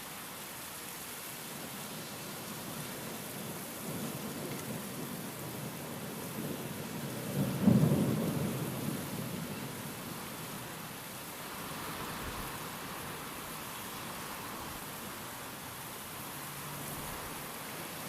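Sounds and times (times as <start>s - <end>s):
steady rain: 0.0s - 18.0s
thunder rolling: 7.2s - 9.5s.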